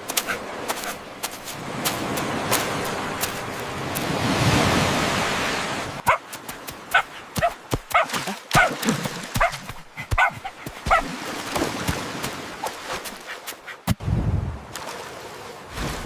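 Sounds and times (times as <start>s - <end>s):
small dog yipping and whimpering: 10.2s - 11.0s.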